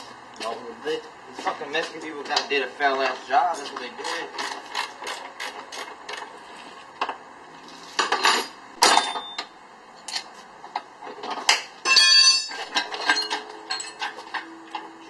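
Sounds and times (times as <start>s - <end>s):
metal tools clinking: 8.0s - 9.4s, 11.8s - 14.8s.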